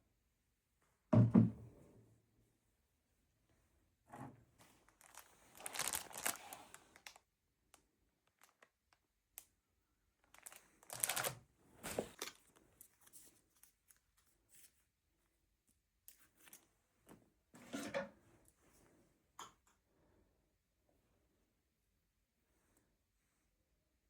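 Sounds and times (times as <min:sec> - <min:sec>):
material crinkling and rustling: 0:04.6 - 0:07.3, 0:08.2 - 0:09.0, 0:10.2 - 0:14.8.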